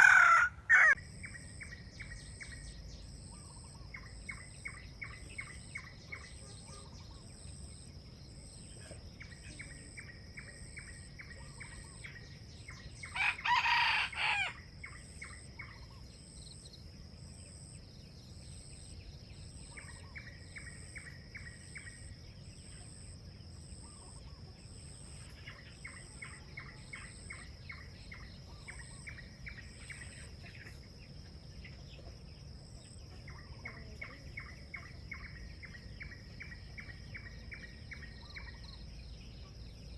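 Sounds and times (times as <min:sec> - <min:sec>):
rooster crowing: 0:00.0 - 0:01.0, 0:13.1 - 0:14.6
high insect drone: 0:00.0 - 0:39.9.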